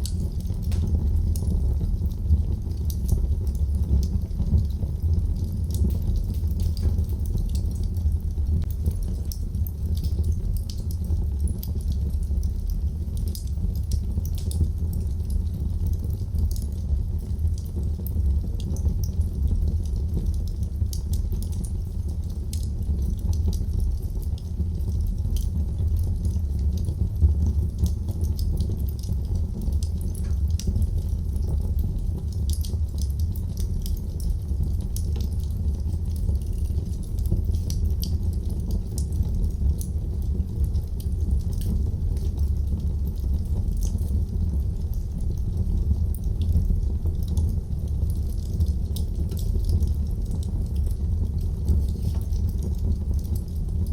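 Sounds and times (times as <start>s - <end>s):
wood fire crackling: 0.0s - 53.9s.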